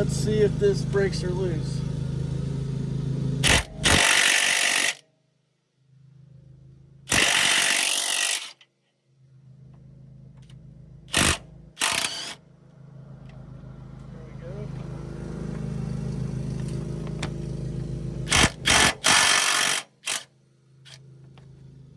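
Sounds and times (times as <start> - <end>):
lawn mower humming: 0.0 - 4.3, 12.1 - 21.9
impact wrench hammering: 3.4 - 5.0, 7.1 - 8.6, 11.1 - 12.4, 18.2 - 20.3.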